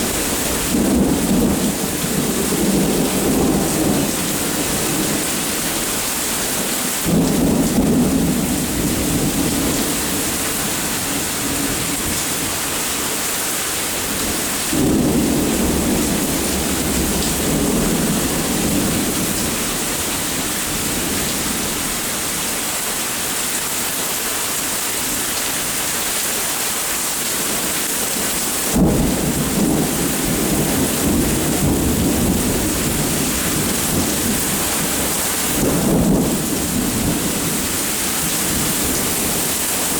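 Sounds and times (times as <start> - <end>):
rolling thunder: 0.0 - 5.8, 7.0 - 12.6, 14.0 - 22.0, 28.6 - 39.9
steady rain: 0.0 - 39.9.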